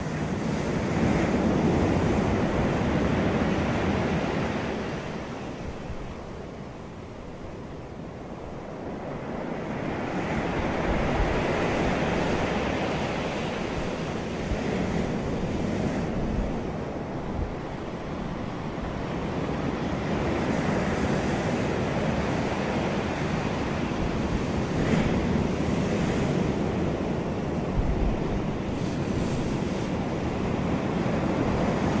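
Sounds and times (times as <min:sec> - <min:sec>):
wind rumbling on microphone: 0:00.0 - 0:32.0
ocean surf breaking: 0:08.6 - 0:32.0.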